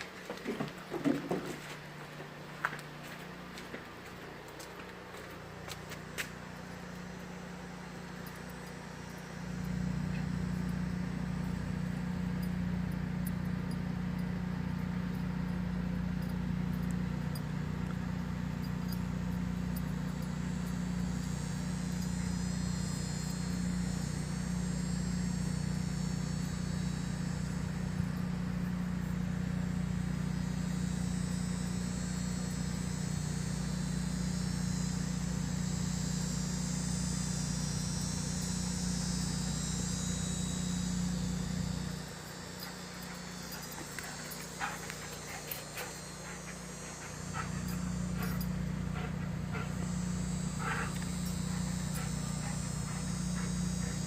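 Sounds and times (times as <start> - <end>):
low mechanical hum: 0.0 - 54.0
high insect trill: 5.0 - 54.0.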